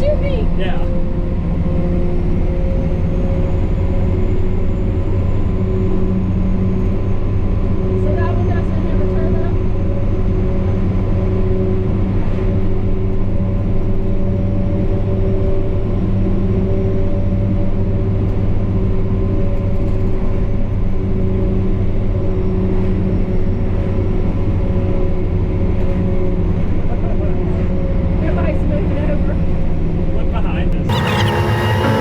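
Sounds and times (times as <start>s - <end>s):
truck diesel engine droning: 30.9s - 32.0s.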